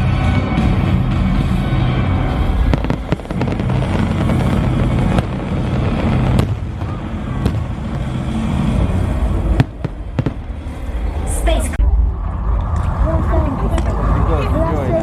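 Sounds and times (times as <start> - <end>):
fireworks bangs and crackles: 0.0 - 11.0
low rumble: 0.0 - 15.0.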